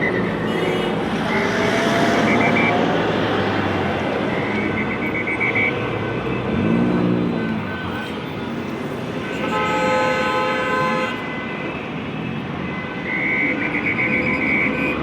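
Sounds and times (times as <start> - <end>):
city street traffic: 0.0 - 15.0
vehicle horn: 7.6 - 11.6.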